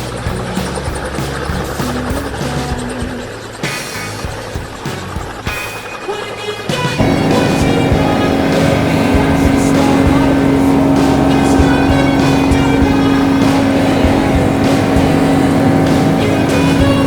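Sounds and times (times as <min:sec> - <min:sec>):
helicopter engine and rotor: 0:00.0 - 0:06.3, 0:07.0 - 0:17.0.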